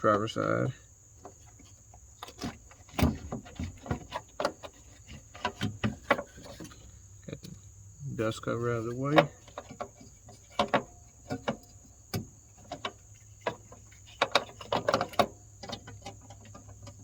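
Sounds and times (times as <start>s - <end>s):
crickets chirring: 0.0s - 17.0s
plastic and metal clicks and knocks: 2.2s - 6.8s, 9.0s - 17.0s.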